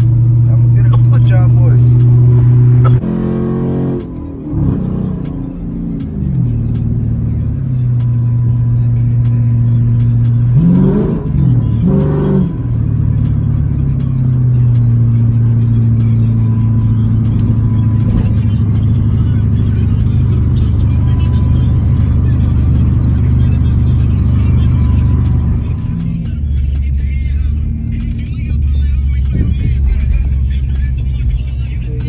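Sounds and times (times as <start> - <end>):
car engine running: 0.0 - 32.0
engine revving: 0.0 - 32.0.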